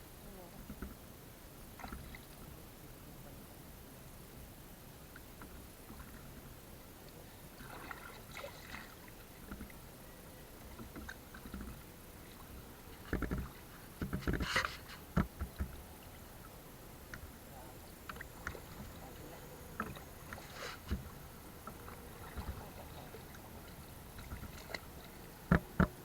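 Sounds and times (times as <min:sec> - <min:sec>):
water splashing around boat: 0:00.5 - 0:26.0
thumps and splashes: 0:13.0 - 0:15.9, 0:19.8 - 0:26.0.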